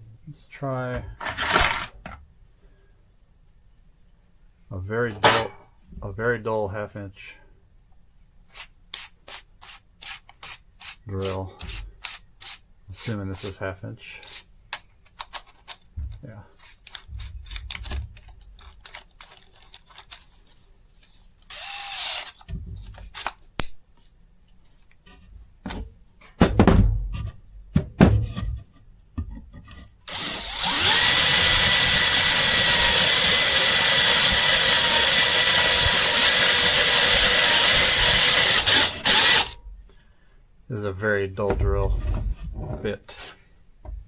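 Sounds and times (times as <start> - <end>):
cordless drill running: 21.5 - 22.4, 30.1 - 39.6.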